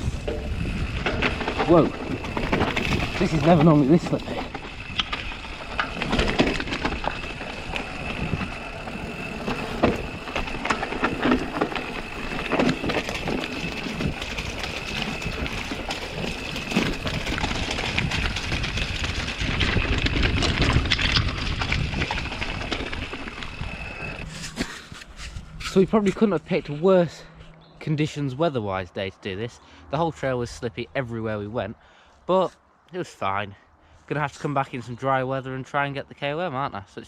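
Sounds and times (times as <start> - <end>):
wind rumble on camera: 0.0 - 26.8
bike tyres slipping through mud: 0.0 - 26.9
bike knocking and rattling: 0.0 - 27.4
high-pitched whine: 19.3 - 28.0.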